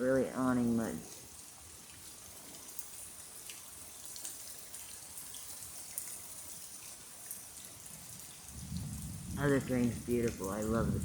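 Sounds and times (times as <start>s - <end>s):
steady rain hiss: 0.0s - 11.0s
single raindrops ticking: 0.6s - 11.0s.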